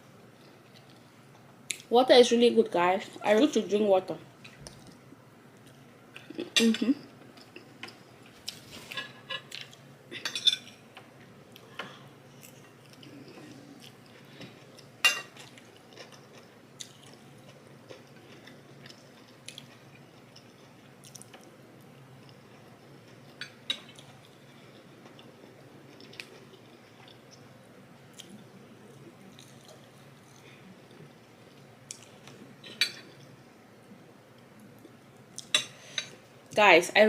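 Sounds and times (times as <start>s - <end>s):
cutlery clinking on plate: 10.2s - 10.8s
quiet chewing: 11.5s - 27.5s, 28.1s - 36.2s.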